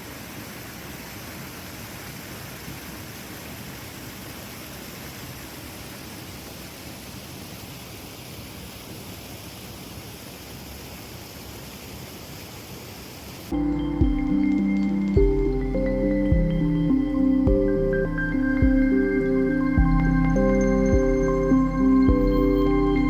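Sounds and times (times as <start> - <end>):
music: 13.5 - 23.0.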